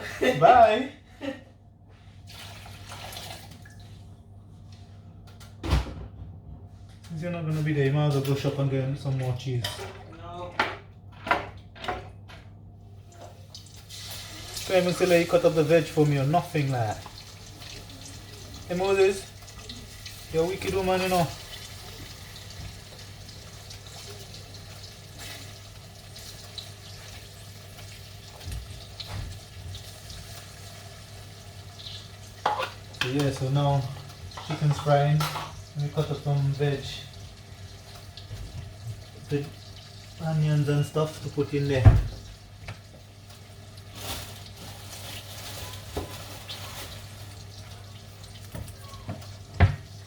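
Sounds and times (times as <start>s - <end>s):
chicken sizzling in frying pan: 13.6s - 50.0s.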